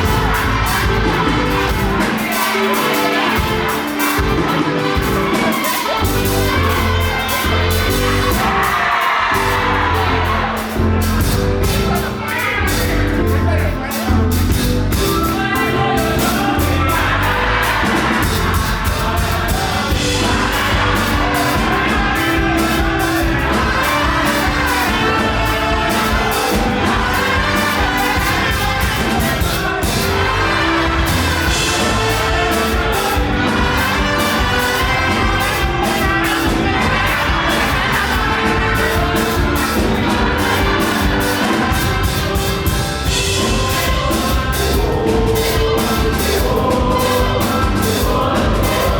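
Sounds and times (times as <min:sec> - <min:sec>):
drums: 0:00.0 - 0:48.9
gospel band playing: 0:00.0 - 0:48.9
people singing: 0:00.0 - 0:48.9.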